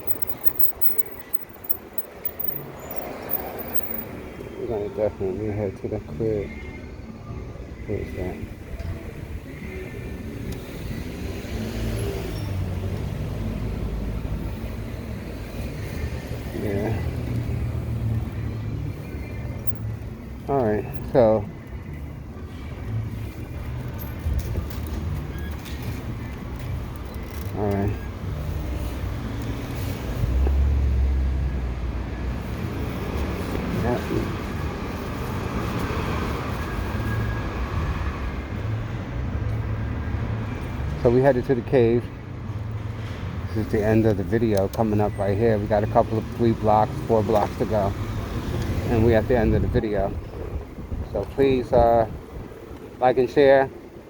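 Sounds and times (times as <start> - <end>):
wind and road noise: 0.0 - 54.0
wind rumble on microphone: 48.4 - 53.0.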